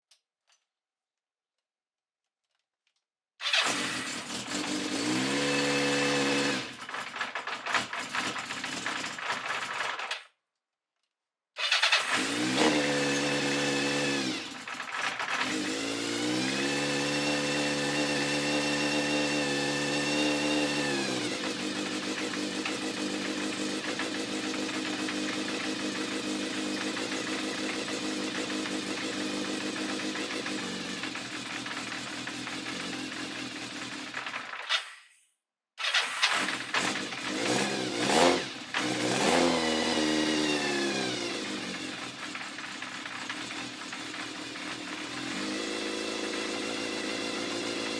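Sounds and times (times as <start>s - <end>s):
motorcycle engine revving: 3.4s - 10.0s, 11.6s - 34.5s, 35.8s - 47.9s
motorcycle engine idling: 21.6s - 34.3s, 41.4s - 45.2s.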